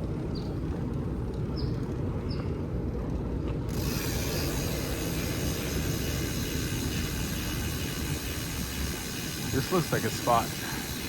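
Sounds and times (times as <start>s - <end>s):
wind: 0.0s - 11.0s
bike freewheel ratchet ticking: 3.7s - 11.0s
tyres rumbling: 3.7s - 11.0s.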